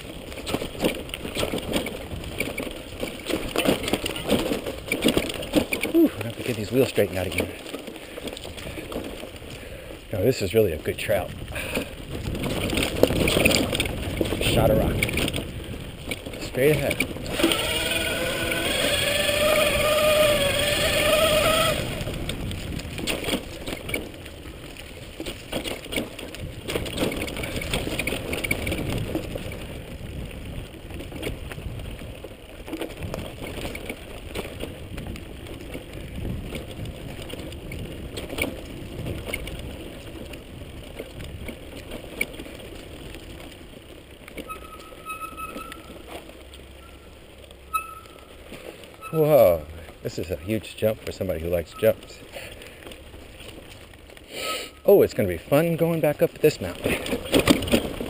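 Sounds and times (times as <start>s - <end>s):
bike rattling over rocks: 0.0s - 58.0s
tyres crunching on dirt: 0.0s - 58.0s
electric motor whine: 17.3s - 22.1s.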